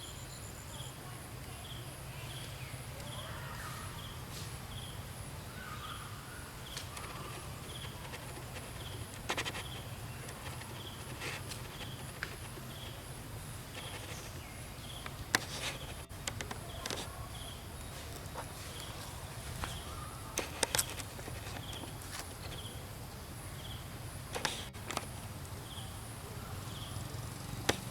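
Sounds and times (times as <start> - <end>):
insect chirping: 0.0 - 27.4
sharp clicks or rustles: 20.4 - 22.7.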